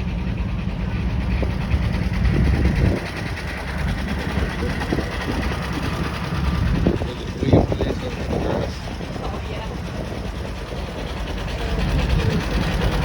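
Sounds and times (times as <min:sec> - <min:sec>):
engine idling: 0:00.0 - 0:13.0
faint voices: 0:03.0 - 0:13.0.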